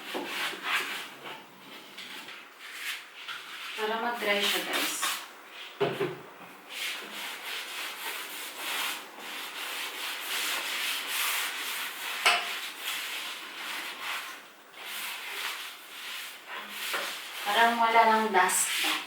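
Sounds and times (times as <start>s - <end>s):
hand rubbing painted surface: 6.7s - 19.0s.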